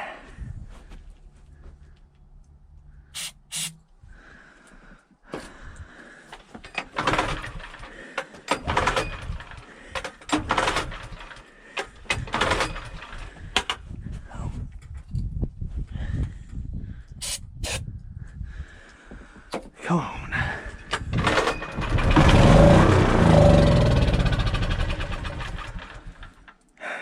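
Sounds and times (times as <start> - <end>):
recoil starter cord pulls: 3.2 - 3.8, 6.3 - 13.8, 20.9 - 26.8.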